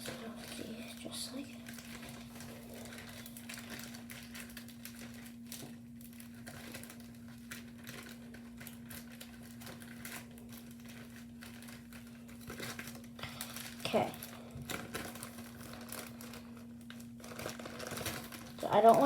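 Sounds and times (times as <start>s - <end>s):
plastic bags crinkling: 0.0s - 19.0s.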